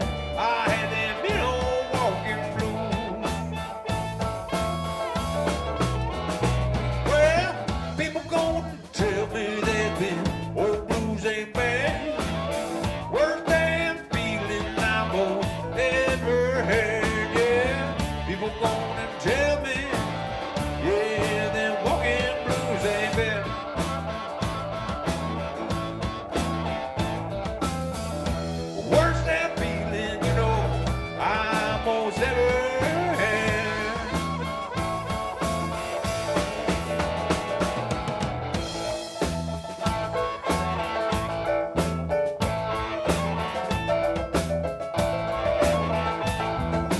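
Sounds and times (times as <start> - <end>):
bass line: 0.0 - 46.9
driving drum beat: 0.0 - 46.9
lead guitar bending notes: 0.0 - 46.9.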